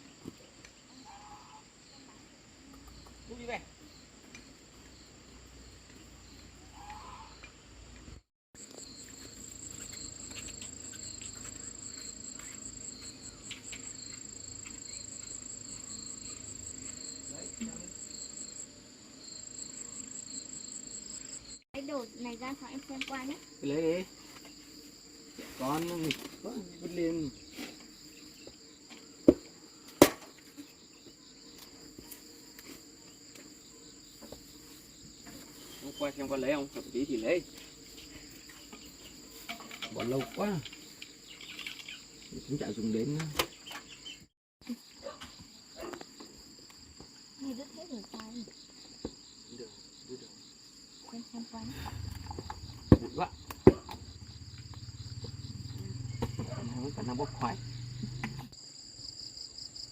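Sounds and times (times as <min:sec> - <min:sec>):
insects chirring: 0:00.0 - 0:59.9
sharp knocks: 0:52.3 - 0:54.0.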